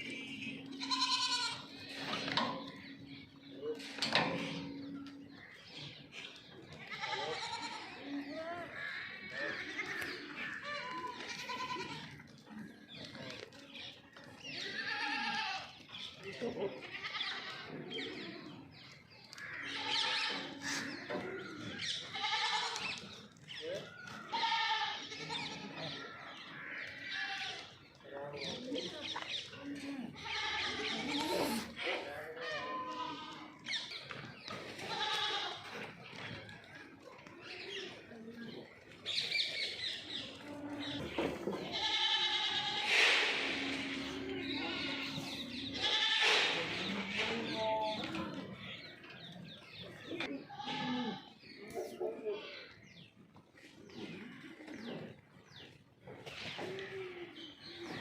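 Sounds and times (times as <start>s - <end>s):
goats bleating: 0.0s - 3.0s, 6.7s - 12.5s, 14.5s - 15.8s, 16.4s - 18.7s, 19.4s - 23.1s, 24.1s - 27.8s, 29.8s - 33.8s, 34.7s - 36.0s, 39.8s - 49.3s, 50.0s - 51.4s.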